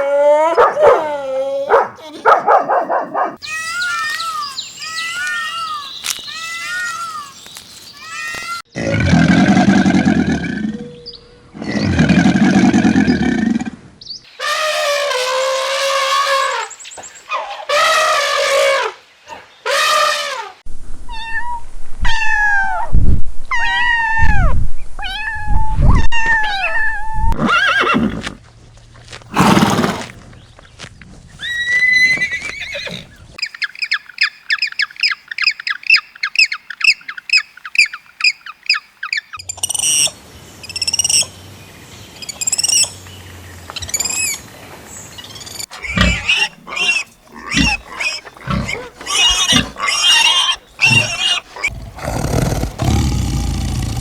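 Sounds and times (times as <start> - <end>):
animal calls: 45.6 - 54.0.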